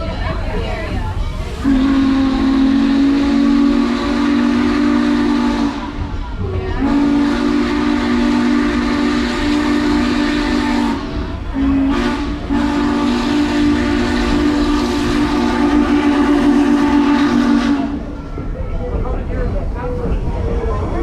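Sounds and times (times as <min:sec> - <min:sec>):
steam hissing: 0:00.0 - 0:18.6
moving train rumble: 0:00.0 - 0:21.0
steam whistle blowing a chord: 0:01.6 - 0:06.0, 0:06.8 - 0:18.0.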